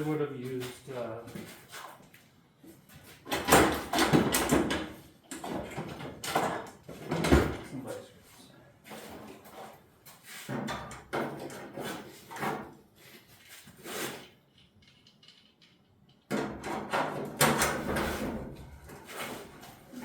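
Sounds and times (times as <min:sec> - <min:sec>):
hand tool scraping sheet metal: 0:11.4 - 0:14.4, 0:16.6 - 0:20.0.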